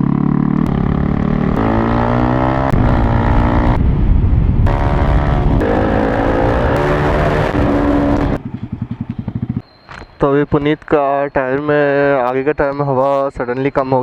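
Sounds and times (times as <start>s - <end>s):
motorcycle accelerating through gears: 0.0s - 9.6s.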